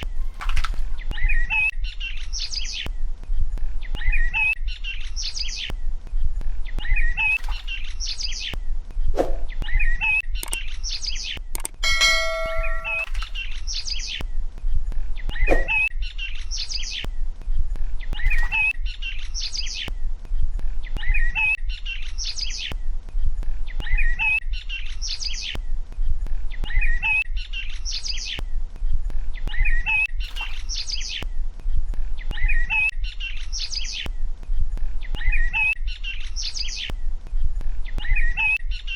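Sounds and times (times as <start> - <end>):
bird chirping: 9.5 - 14.2
bell-like ding: 11.8 - 13.2.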